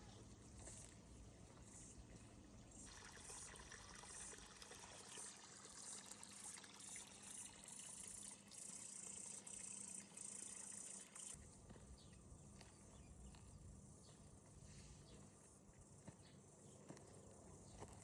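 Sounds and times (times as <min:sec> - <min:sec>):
insects chirping: 0:00.4 - 0:18.0
running water trickling: 0:02.8 - 0:11.4.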